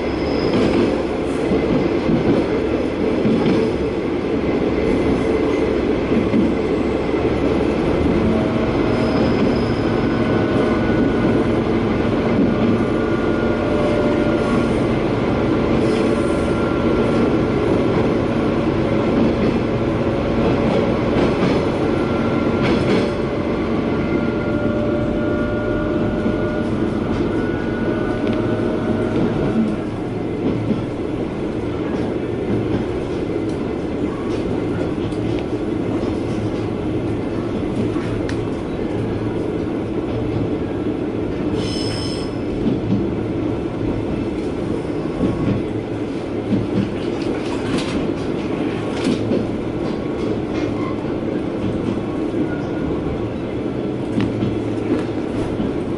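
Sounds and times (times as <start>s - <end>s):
faint wheel squeal: 0.0s - 0.8s, 8.9s - 10.2s, 41.6s - 42.4s
railcar engine and wheels rumbling: 0.0s - 55.9s.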